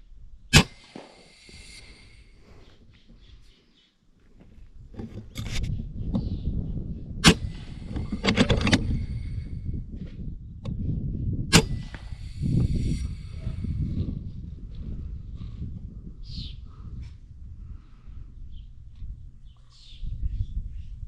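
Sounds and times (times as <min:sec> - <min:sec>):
low rumble of wind: 0:00.0 - 0:21.0
air rifle shots: 0:00.5 - 0:02.6, 0:07.2 - 0:09.5, 0:11.5 - 0:13.4
quick clicks: 0:07.2 - 0:09.4.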